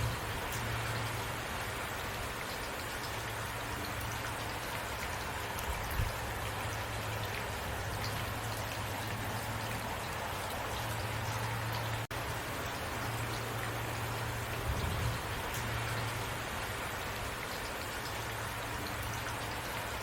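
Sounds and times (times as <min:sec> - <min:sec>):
low steady rumble: 0:00.0 - 0:01.6
heavy rain falling: 0:00.0 - 0:20.0.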